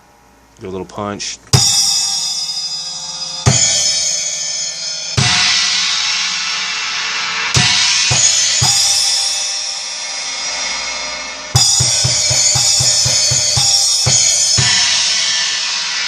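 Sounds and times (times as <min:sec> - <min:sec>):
cymbal crashes: 0:01.5 - 0:16.0
bass drum kicks: 0:11.6 - 0:15.2.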